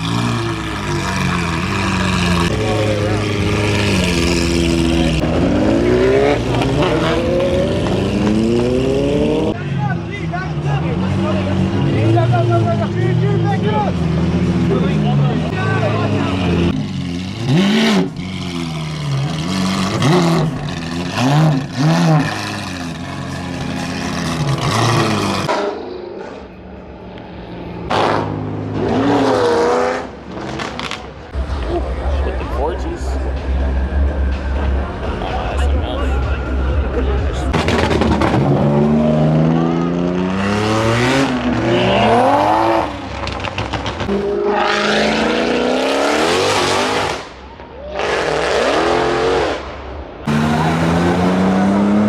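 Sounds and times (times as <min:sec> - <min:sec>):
car engine revving: 0:00.0 - 0:52.0
tire squeal and skid: 0:41.0 - 0:45.4.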